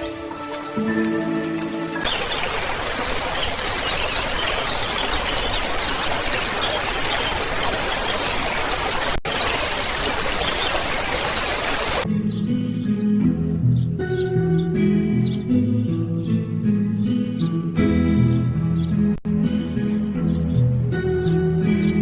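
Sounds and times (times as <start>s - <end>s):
rushing water sound: 0.0s - 12.1s.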